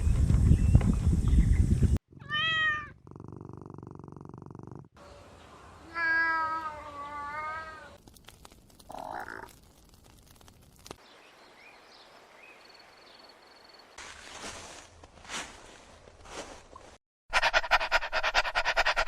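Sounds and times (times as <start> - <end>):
cat meowing: 2.2 - 3.0, 5.9 - 8.0.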